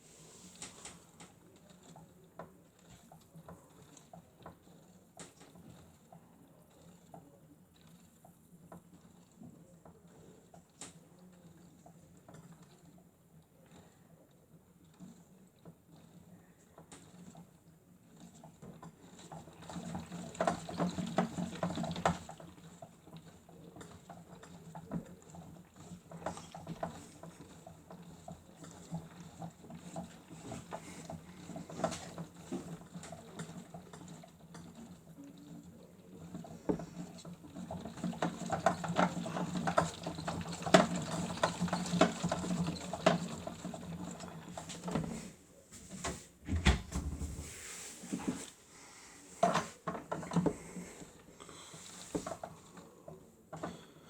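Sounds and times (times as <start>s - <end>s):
water and laundry patter: 14.6s - 54.0s.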